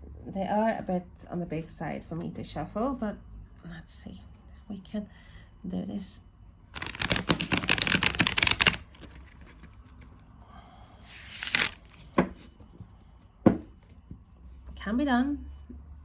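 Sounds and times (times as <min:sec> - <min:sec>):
cards being shuffled: 0:06.8 - 0:10.2, 0:11.1 - 0:12.5
card swish: 0:11.2 - 0:12.1.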